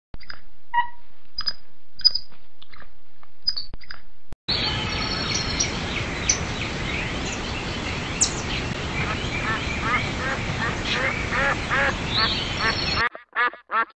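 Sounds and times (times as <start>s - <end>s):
birds chirping: 3.5s - 13.8s
steady background noise: 4.5s - 13.0s.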